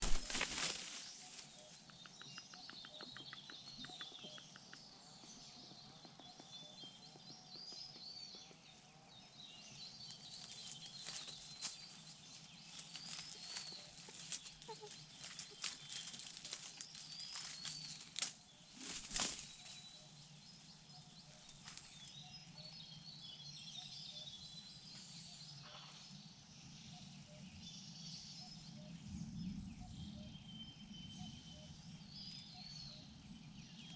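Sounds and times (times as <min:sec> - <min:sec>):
rustles: 0:00.0 - 0:01.8, 0:10.0 - 0:20.1, 0:21.4 - 0:22.1
small birds chirping: 0:00.0 - 0:33.9.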